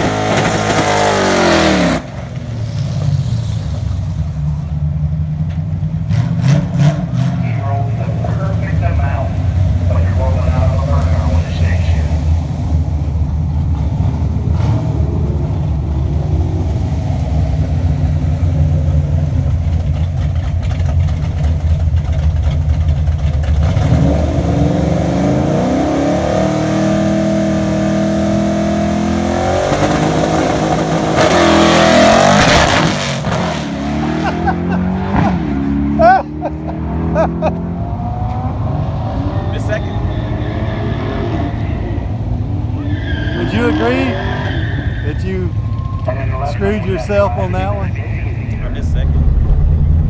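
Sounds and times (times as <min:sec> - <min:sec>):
car engine idling and accelerating: 0:00.0 - 0:50.0.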